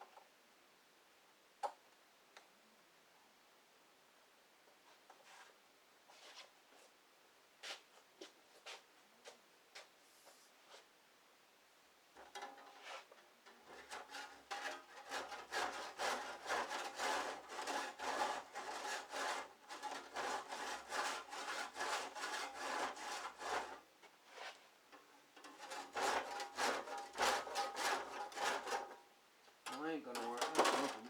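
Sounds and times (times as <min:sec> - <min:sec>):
handsaw cutting: 0:13.9 - 0:23.8, 0:25.6 - 0:28.9.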